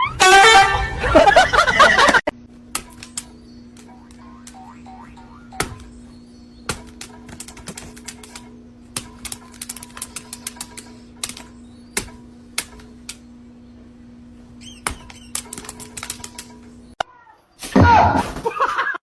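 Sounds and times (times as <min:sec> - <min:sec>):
steady low hum: 0:00.0 - 0:17.0
squeaky chirp: 0:02.9 - 0:07.6, 0:14.5 - 0:17.6
sharp clicks and taps: 0:06.6 - 0:13.2, 0:14.8 - 0:16.7.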